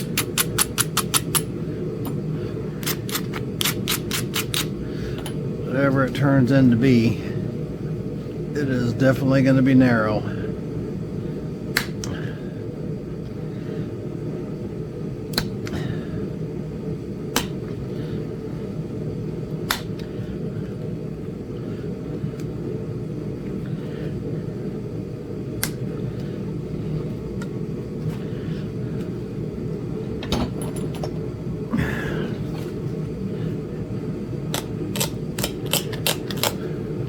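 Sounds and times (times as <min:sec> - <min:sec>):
heater humming: 0:00.0 - 0:37.0
stone flakes snapping: 0:34.5 - 0:36.6.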